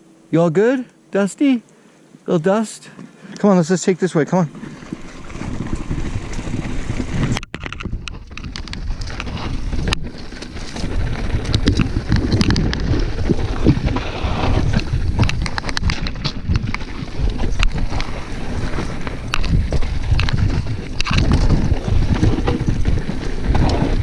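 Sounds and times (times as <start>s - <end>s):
tyres rumbling over dirt and rocks: 4.5s - 24.0s
wind rushing over microphone: 4.6s - 24.0s
bike rattling clicks: 5.7s - 24.0s.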